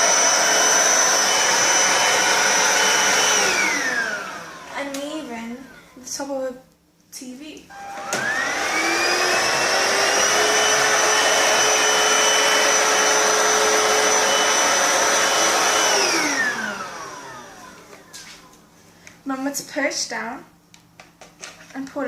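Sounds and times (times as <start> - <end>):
stick vacuum motor whine: 0.0 - 5.5, 7.7 - 18.2.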